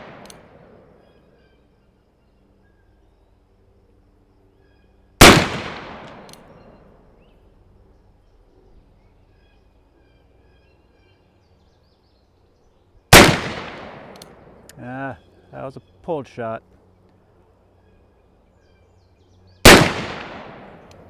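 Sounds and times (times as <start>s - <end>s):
revolver gunshots with echo: 0.0s - 1.2s, 5.2s - 7.0s, 13.1s - 14.7s, 19.6s - 21.0s.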